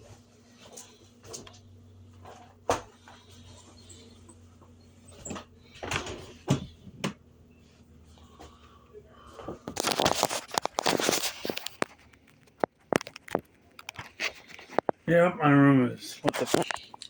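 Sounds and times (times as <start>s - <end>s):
rustling and crackling: 9.3s - 15.1s.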